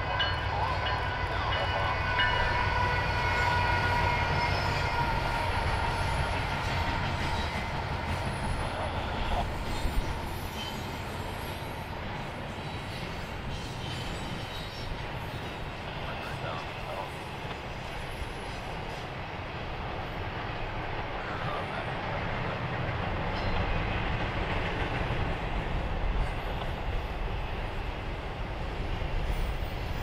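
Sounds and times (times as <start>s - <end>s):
train rumbling past: 0.0s - 30.0s.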